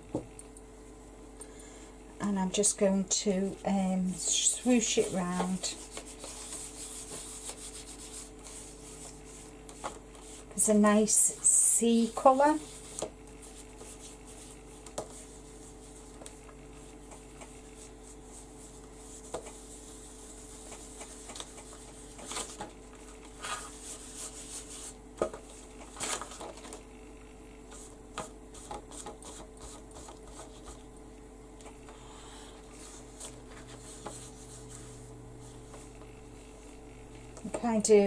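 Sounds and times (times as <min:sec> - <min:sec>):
faint steady hum: 0:00.0 - 0:38.0
hands rubbing on paper: 0:04.1 - 0:22.6, 0:23.3 - 0:25.7, 0:27.7 - 0:30.8, 0:32.6 - 0:36.2.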